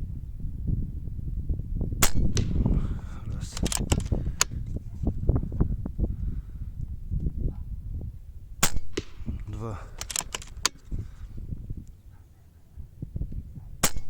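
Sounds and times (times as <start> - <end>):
wind rumble on microphone: 0.0 - 14.0
air rifle shot: 2.0 - 4.6, 8.6 - 11.2, 13.8 - 14.0
sharp clicks: 2.0 - 4.8, 8.6 - 11.0.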